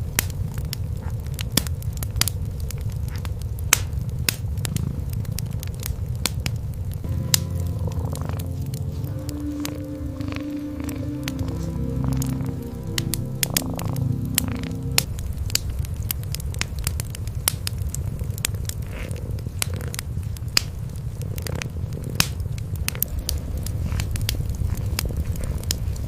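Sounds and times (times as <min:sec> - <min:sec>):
wood fire crackling: 0:00.0 - 0:26.0
cats purring: 0:04.5 - 0:05.9, 0:07.6 - 0:15.1, 0:17.4 - 0:26.0.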